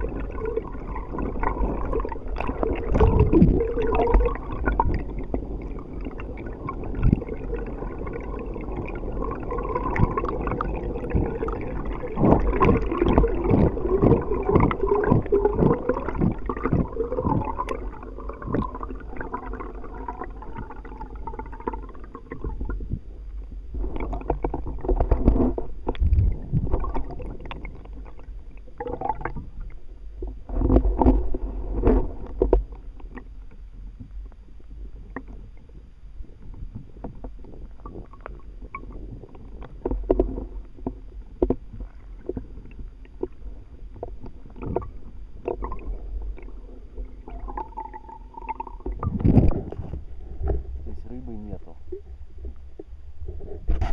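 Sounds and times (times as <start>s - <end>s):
knocks and splashes: 0.0s - 5.4s, 9.7s - 20.9s, 23.8s - 28.2s, 47.3s - 50.7s
low rumble: 0.0s - 53.9s
water sloshing against kayak hull: 0.0s - 53.9s.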